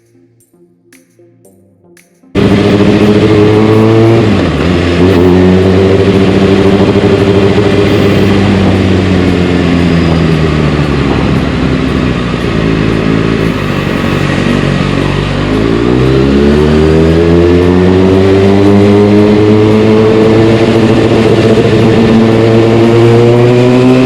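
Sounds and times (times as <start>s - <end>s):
motorcycle engine revving: 2.3s - 24.0s.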